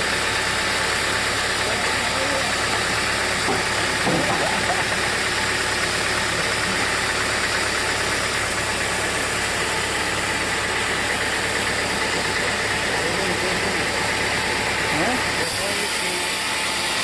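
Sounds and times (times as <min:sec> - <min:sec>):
sawmill machinery running: 0:00.0 - 0:17.0.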